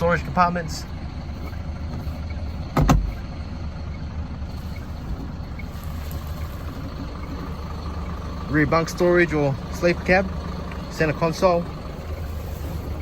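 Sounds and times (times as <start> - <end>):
truck diesel engine idling: 0.0 - 13.0
thump: 2.8 - 3.2.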